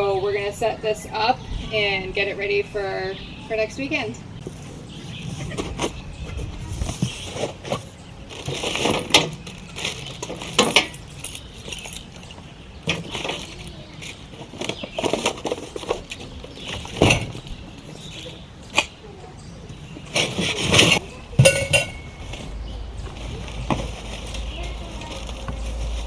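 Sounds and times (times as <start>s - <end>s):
metal stove parts clattering: 8.8s - 12.1s, 20.2s - 22.5s
rustling: 20.0s - 26.0s.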